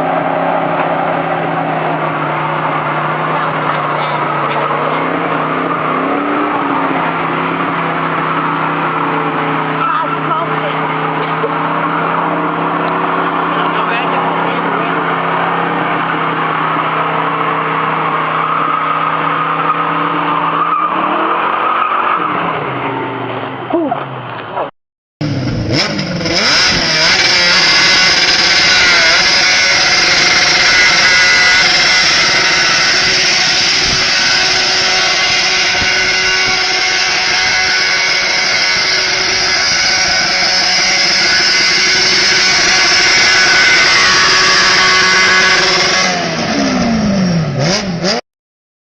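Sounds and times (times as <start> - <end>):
car engine revving high: 0.0 - 24.3, 25.2 - 48.2
tyres screeching on road: 0.0 - 48.2.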